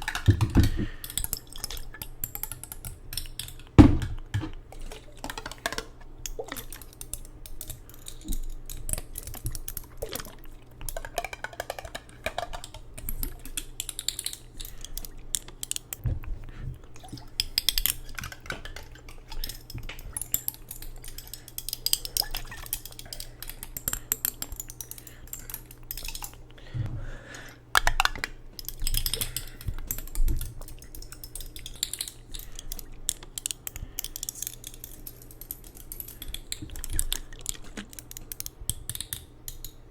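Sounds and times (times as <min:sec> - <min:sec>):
tapping on hard objects: 0:00.0 - 0:06.9, 0:07.5 - 0:13.7
clicks and clatters: 0:00.0 - 0:16.0, 0:17.0 - 0:26.5, 0:27.8 - 0:39.8.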